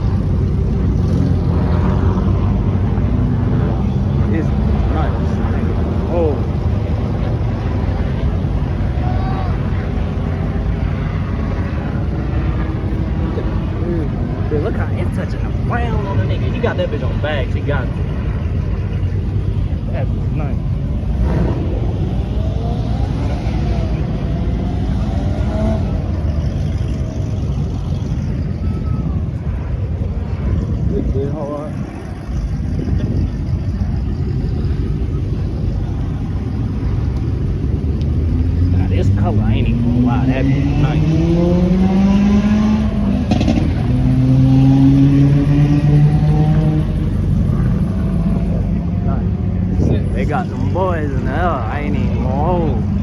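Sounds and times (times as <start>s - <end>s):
car engines rumbling: 0.0s - 53.0s.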